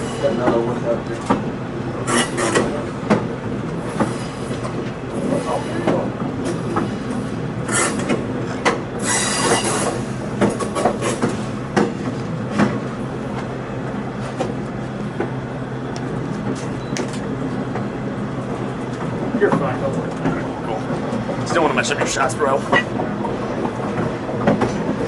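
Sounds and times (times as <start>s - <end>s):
train rumbling along rails: 0.0s - 25.0s
high wheel squeals: 9.0s - 10.2s
wheels clicking over track: 18.5s - 25.0s.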